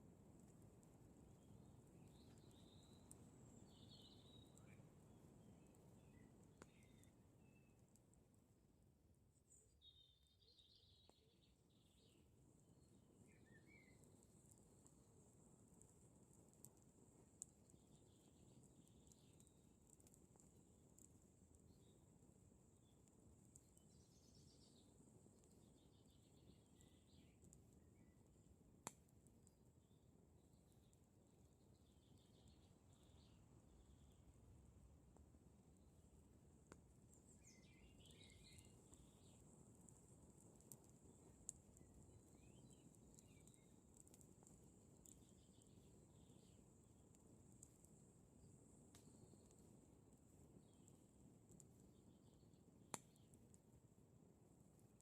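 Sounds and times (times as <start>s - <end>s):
campfire crackling and popping: 0.0s - 8.5s, 11.0s - 55.0s
faint bird chirps: 1.3s - 8.0s, 9.3s - 14.7s, 17.5s - 19.6s, 22.8s - 28.3s, 29.8s - 34.4s, 37.0s - 39.6s, 42.2s - 44.1s, 45.0s - 46.7s
distant birdsong trilling: 13.3s - 14.1s, 37.2s - 39.4s.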